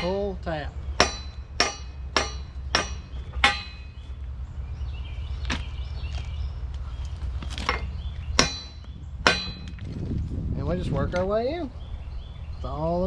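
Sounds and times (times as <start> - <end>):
steady low hum: 0.0 - 13.0
hammer striking steel pin: 1.0 - 4.0, 7.7 - 9.8.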